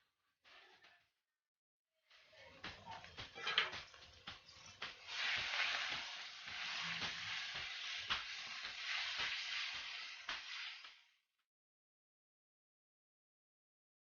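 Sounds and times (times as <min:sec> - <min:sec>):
meat sizzling: 0:02.2 - 0:11.2.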